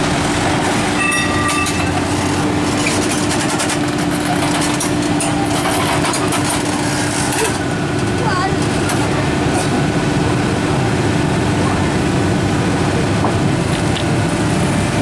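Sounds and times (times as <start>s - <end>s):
truck diesel engine running: 0.0s - 15.0s
short high tone: 1.0s - 2.3s.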